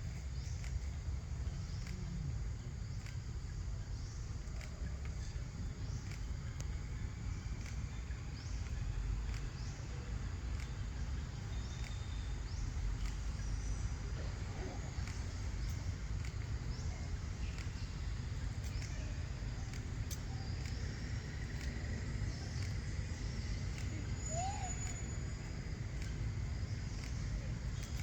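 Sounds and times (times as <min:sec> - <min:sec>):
sharp clicks: 0:00.1 - 0:28.0
faint high chirps: 0:16.4 - 0:28.0.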